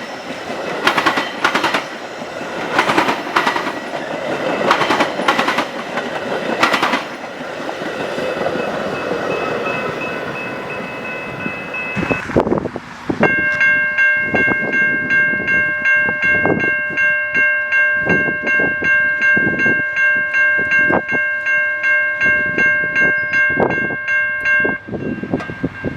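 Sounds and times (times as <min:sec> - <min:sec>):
train wheels clacking: 0:00.0 - 0:12.3
crossing warning bell ringing: 0:00.0 - 0:25.9.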